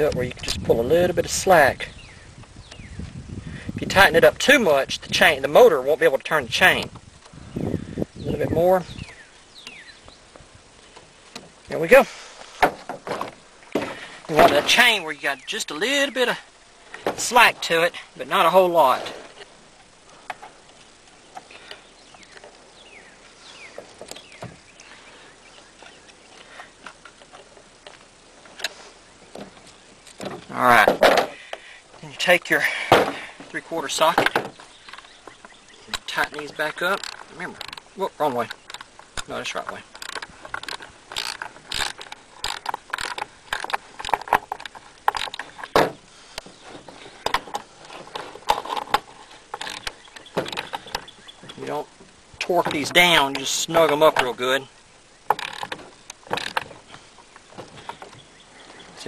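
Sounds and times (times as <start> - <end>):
birds chirping: 0.0 - 59.0
clicks and knocks of chainsaw chain: 39.9 - 45.7, 47.2 - 51.1, 55.3 - 56.8.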